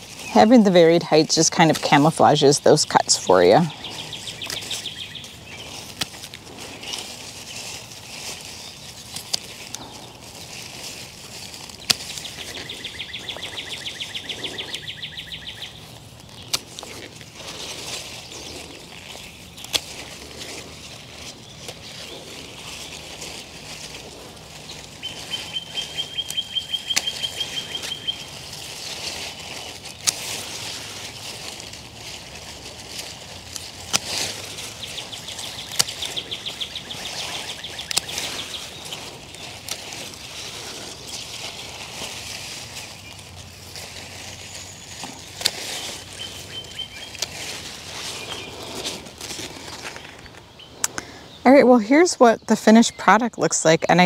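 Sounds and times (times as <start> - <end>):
songbird trilling: 0.0 - 5.9, 11.7 - 16.6, 17.5 - 43.4, 44.0 - 53.9
outdoor ambience: 0.0 - 54.0
hand pruners snipping: 5.8 - 7.1, 9.1 - 12.7, 16.3 - 24.1, 24.8 - 43.4, 44.9 - 51.0.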